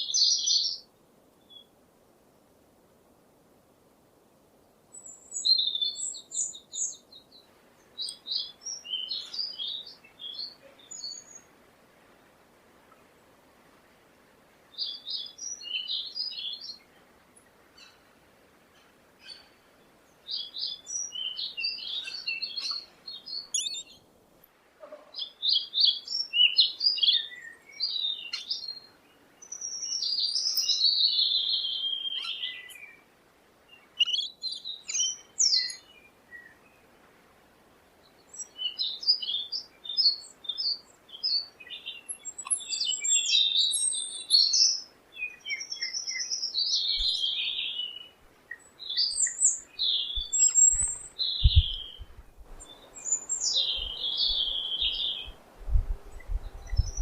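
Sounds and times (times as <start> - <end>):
songbird singing: 0.0 - 1.8, 4.8 - 57.0.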